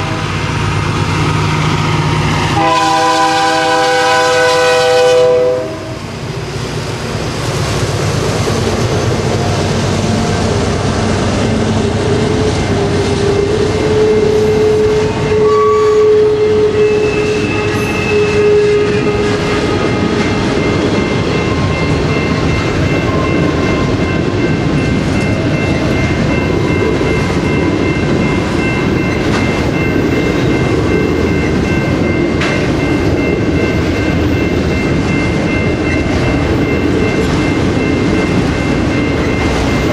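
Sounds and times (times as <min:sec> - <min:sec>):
train wheels rumbling on rails: 0:00.0 - 0:39.9
train horn chord: 0:02.5 - 0:06.1, 0:13.3 - 0:19.4
thin high squealing tone: 0:12.6 - 0:19.2.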